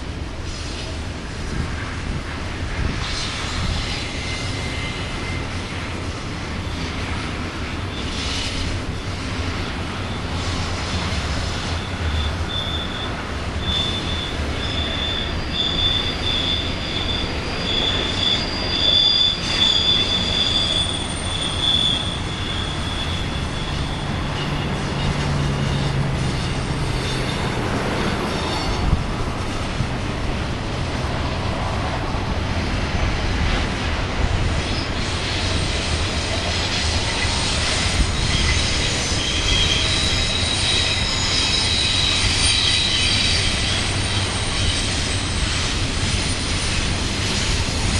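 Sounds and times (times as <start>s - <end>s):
train wheels rolling on rails: 0.0s - 47.9s
high-pitched wheel squeal: 2.9s - 5.8s, 10.0s - 29.0s, 34.5s - 47.9s.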